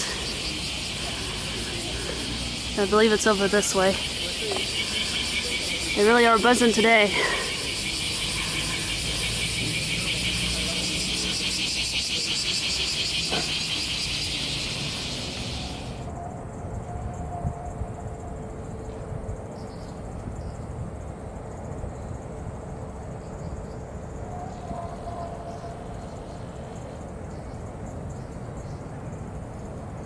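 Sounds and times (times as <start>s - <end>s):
cicadas buzzing: 0.0s - 16.2s, 22.0s - 29.8s.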